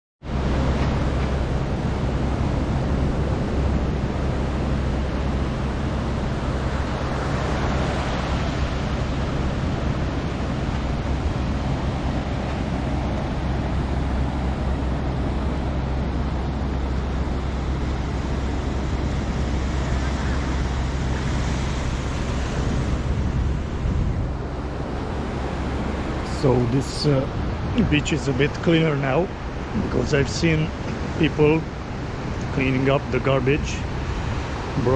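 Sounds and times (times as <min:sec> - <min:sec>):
surf breaking on beach: 0:00.3 - 0:34.9
wind buffeting microphone: 0:00.3 - 0:34.9
low rumble: 0:00.6 - 0:28.4.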